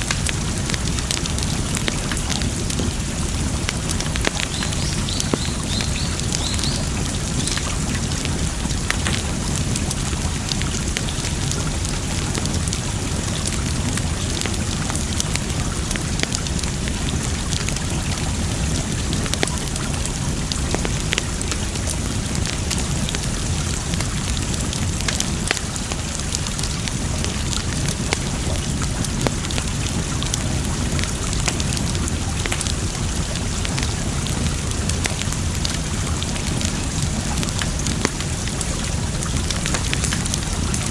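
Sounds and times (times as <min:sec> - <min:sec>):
campfire crackling and popping: 0:00.0 - 0:40.9.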